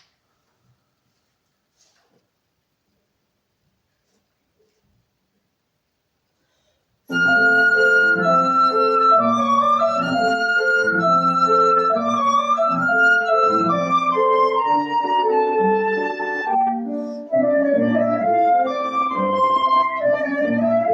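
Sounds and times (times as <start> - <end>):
flute melody with vibrato: 7.1 - 20.9
piano chords: 7.1 - 20.9.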